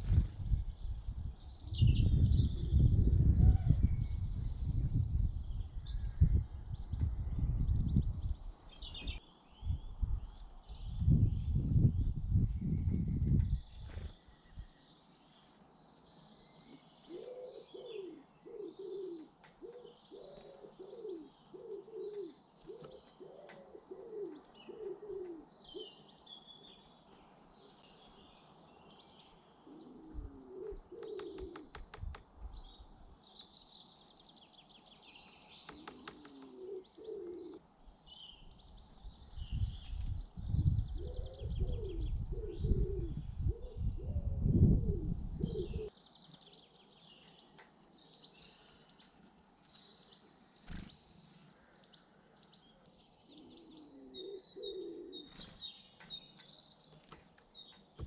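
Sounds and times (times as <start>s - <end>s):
small birds chirping: 0.0s - 58.0s
pigeon cooing: 17.1s - 26.0s, 29.7s - 31.8s, 35.7s - 37.6s, 41.0s - 45.9s, 53.4s - 55.4s.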